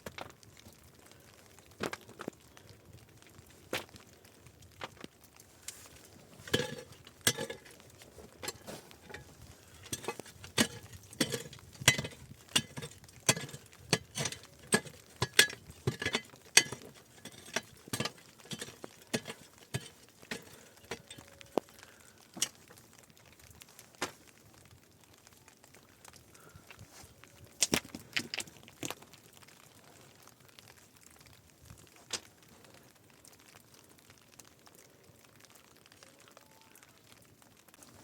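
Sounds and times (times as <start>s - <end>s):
sharp clicks and knocks: 6.5s - 21.7s.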